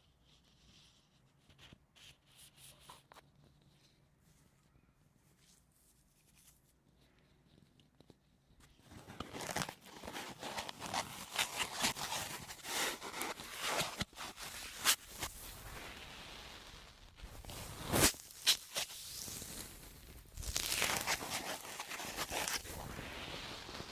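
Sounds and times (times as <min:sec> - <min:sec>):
sponge crunching and crackling: 0:20.4 - 0:23.9.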